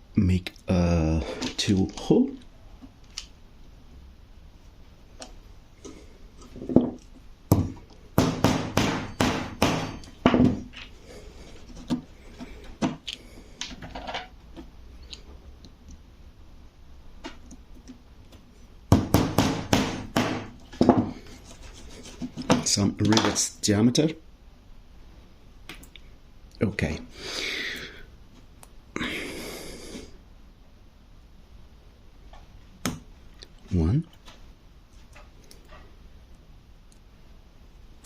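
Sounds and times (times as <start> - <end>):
hammer knocking on brass: 7.5 - 10.5.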